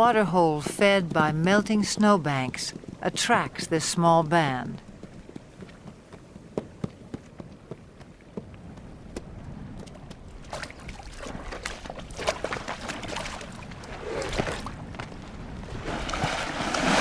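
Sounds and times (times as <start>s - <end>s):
horses splashing through water: 4.3s - 17.0s.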